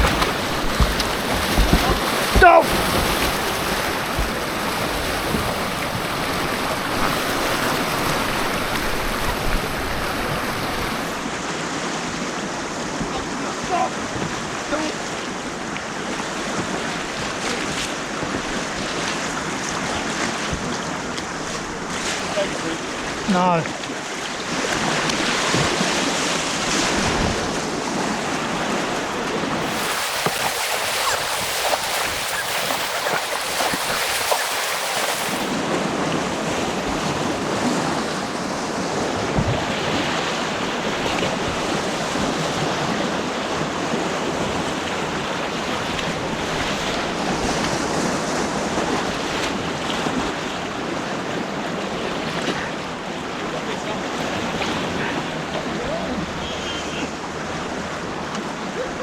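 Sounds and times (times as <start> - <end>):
wind buffeting microphone: 0.0 - 11.2
churning white water: 0.0 - 59.0.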